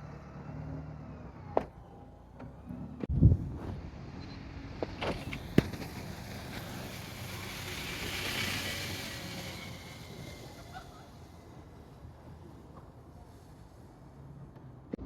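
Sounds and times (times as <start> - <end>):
vehicle engine rumbling: 0.0 - 15.0
hiss: 5.4 - 11.8.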